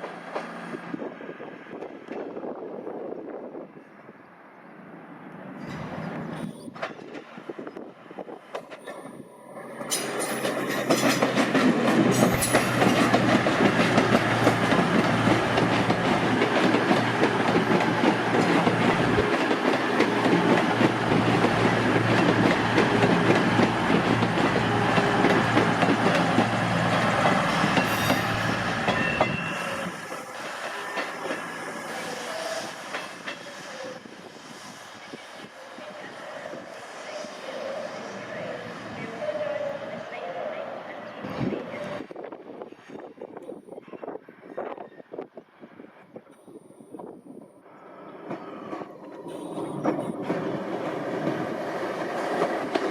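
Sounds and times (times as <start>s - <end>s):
train wheels clattering over rail joints: 9.8s - 29.6s.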